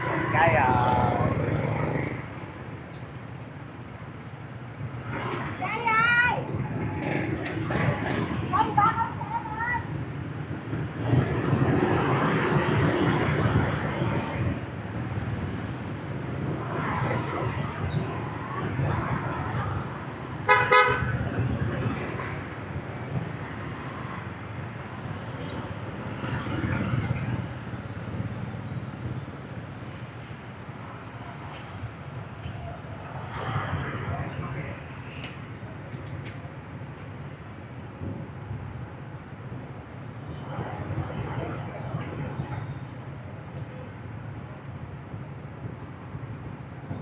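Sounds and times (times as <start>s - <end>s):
motorbike engines running: 0.0s - 37.3s.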